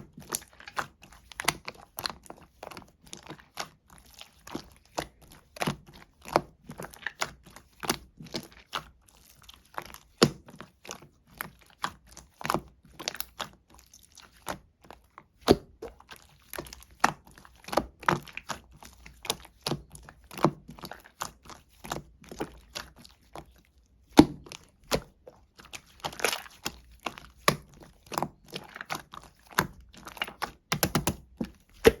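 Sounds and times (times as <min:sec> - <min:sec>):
slime squished by hand: 0:00.0 - 0:32.0
air bubbles popping in slime: 0:29.6 - 0:32.0.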